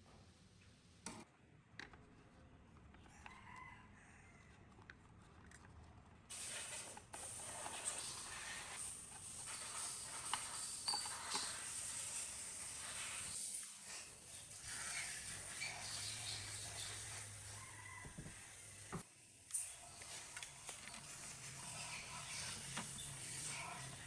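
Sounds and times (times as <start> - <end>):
steady hiss: 6.3 - 24.0.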